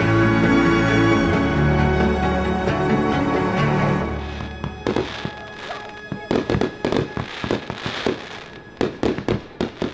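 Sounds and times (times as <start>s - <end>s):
fireworks crackling: 4.1s - 9.9s
fireworks bangs: 4.3s - 9.9s.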